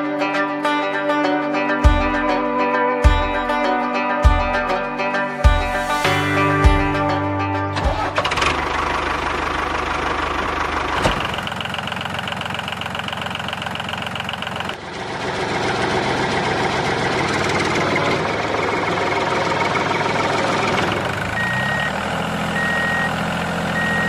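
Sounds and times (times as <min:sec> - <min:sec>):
background music: 0:00.0 - 0:08.8
steady whine: 0:04.9 - 0:09.9.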